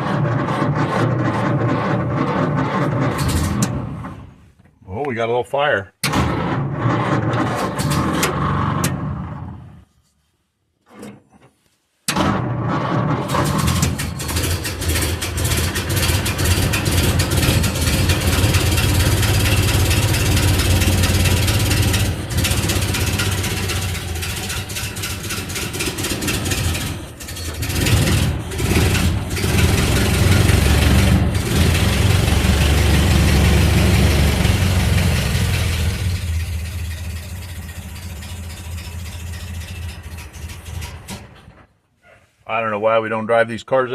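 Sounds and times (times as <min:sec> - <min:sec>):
car engine running unevenly: 0:13.4 - 0:41.1.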